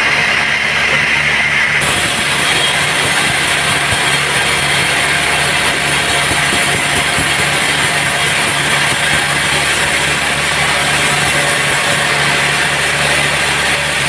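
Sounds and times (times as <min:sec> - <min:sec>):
motor hum: 0:00.0 - 0:14.0
sawmill machinery running: 0:00.0 - 0:14.0.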